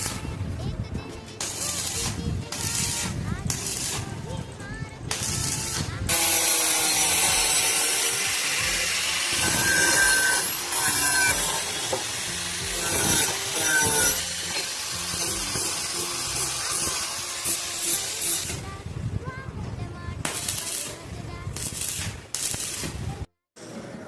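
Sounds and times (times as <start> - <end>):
power tool rasping on steel: 5.2 - 18.6.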